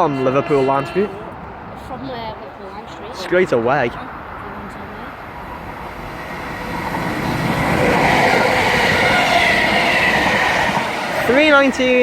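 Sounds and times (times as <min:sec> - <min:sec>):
electric train passing: 0:03.6 - 0:12.0
steady train whine: 0:04.2 - 0:12.0
wheel and track rumble: 0:04.3 - 0:12.0.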